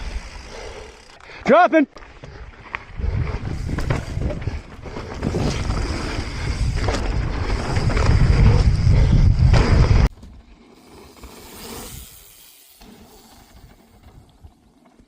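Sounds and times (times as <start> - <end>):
wind buffeting microphone: 2.4 - 10.1
tyres rolling over dirt: 3.5 - 15.0
bike knocks and rattles: 3.6 - 6.1, 6.7 - 10.4.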